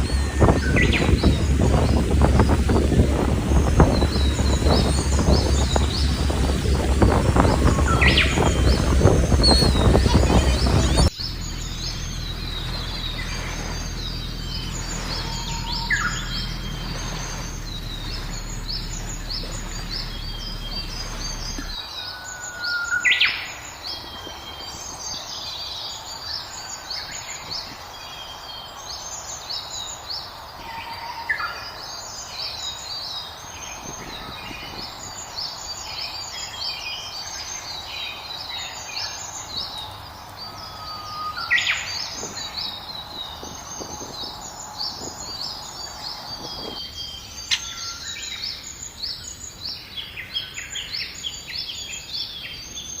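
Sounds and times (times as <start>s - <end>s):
low steady hum: 0.0s - 21.8s
loud sweeping bird call: 0.0s - 53.0s
songbirds chirping: 0.0s - 53.0s.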